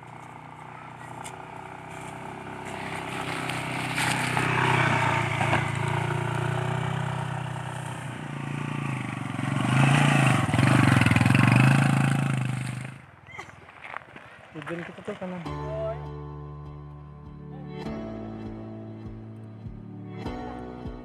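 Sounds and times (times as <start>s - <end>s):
motorcycle engine revving: 0.0s - 15.6s.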